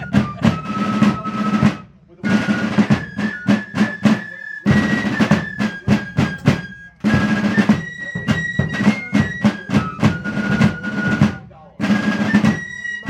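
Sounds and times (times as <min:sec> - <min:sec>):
drum strokes and rolls: 0:00.0 - 0:13.0.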